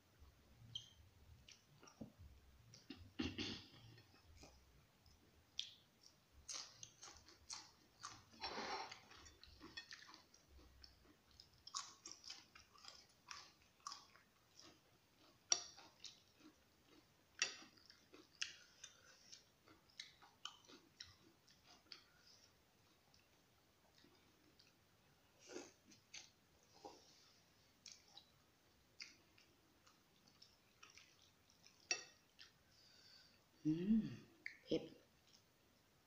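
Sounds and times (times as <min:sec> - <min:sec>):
chewing and crunching leek: 0:04.4 - 0:24.8, 0:25.4 - 0:27.2, 0:29.0 - 0:32.6.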